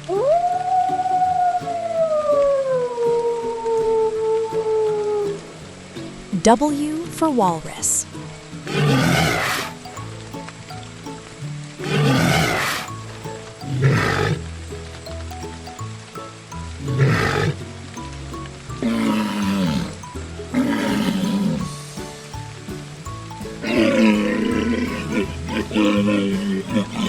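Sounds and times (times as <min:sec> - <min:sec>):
background music: 0:00.0 - 0:27.0
walrus calls: 0:08.7 - 0:09.8, 0:18.8 - 0:21.7, 0:23.6 - 0:27.0.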